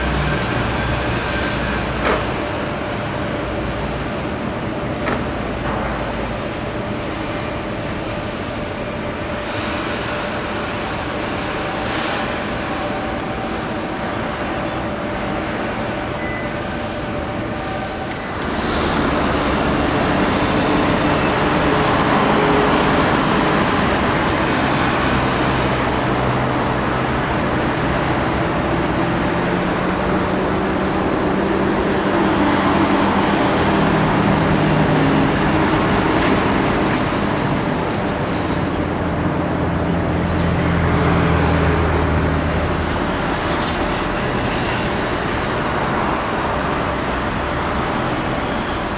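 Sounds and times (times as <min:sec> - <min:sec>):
vehicles passing: 0:16.8 - 0:48.9.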